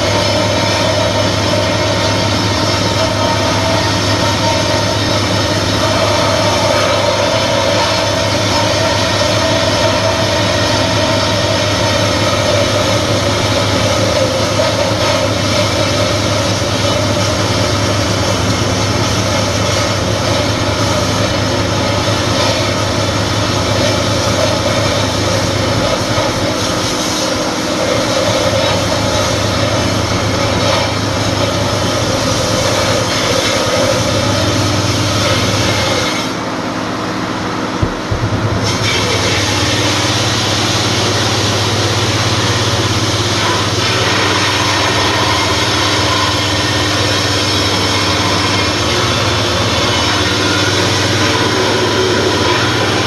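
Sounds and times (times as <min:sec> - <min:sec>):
belt sander grinding metal: 0:00.0 - 0:36.4
sander motor hum: 0:37.8 - 0:45.0.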